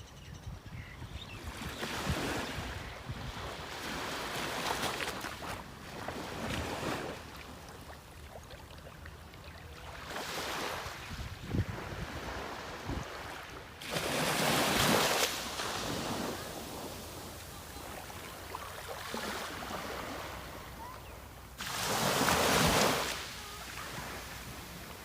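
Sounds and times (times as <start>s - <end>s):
sea waves washing ashore: 2.0s - 25.0s
wind rumbling on microphone: 11.0s - 13.2s.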